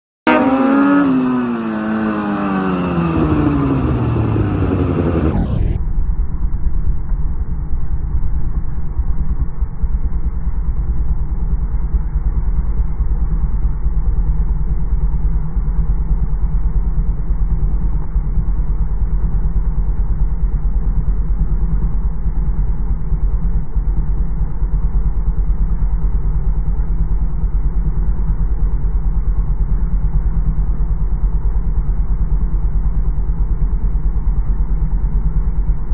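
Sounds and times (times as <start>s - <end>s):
motorcycle engine idling: 0.3s - 5.8s, 6.4s - 35.9s.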